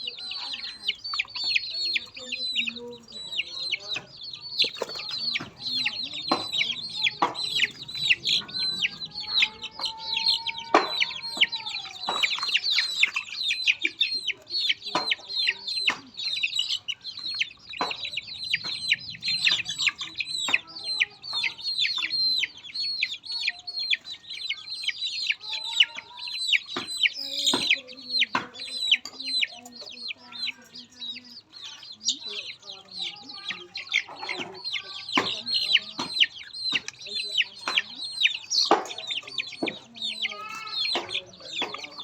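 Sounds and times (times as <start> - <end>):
chicks peeping: 0.0 - 42.0
sharp knocks: 4.6 - 9.9.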